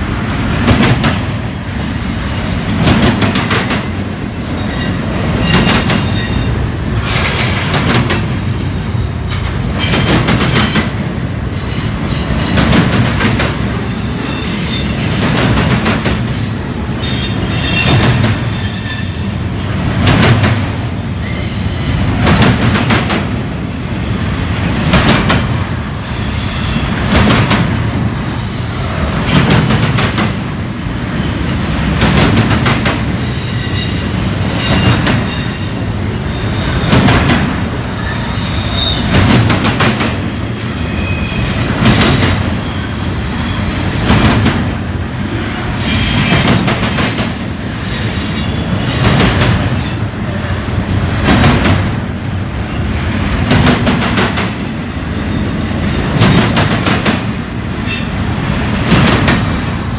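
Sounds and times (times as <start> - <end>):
train rolling past rumbling: 0.0 - 59.9
high wheel squeals: 13.9 - 15.4, 21.2 - 22.1, 38.0 - 39.1, 40.7 - 41.5, 42.5 - 44.1.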